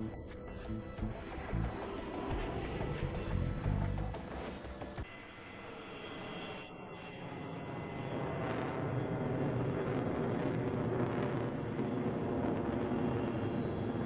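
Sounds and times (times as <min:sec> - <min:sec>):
jet aircraft rumble: 0:05.6 - 0:14.0.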